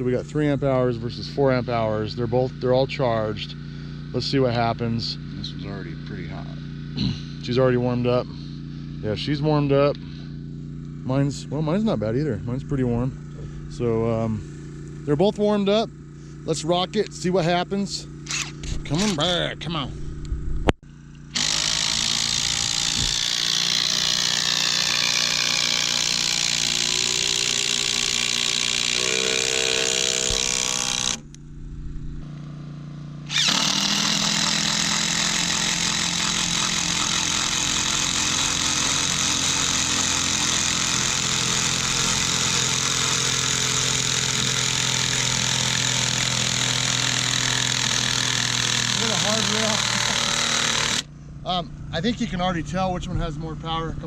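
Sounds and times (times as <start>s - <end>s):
impact drivers driving screws into timber: 18.2s - 19.2s, 21.3s - 31.3s, 33.3s - 51.1s.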